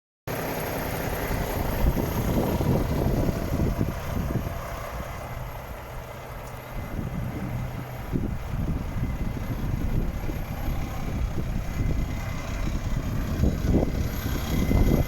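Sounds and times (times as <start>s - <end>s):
diesel truck engine idling: 0.3s - 15.0s.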